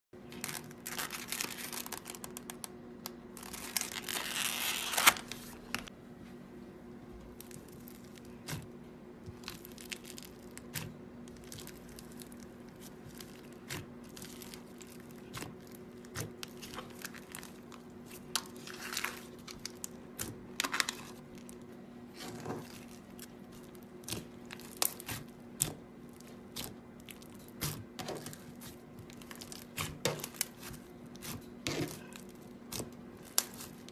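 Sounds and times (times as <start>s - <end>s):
slime crackling and tearing: 0.4s - 2.5s, 9.4s - 21.2s, 26.5s - 33.9s.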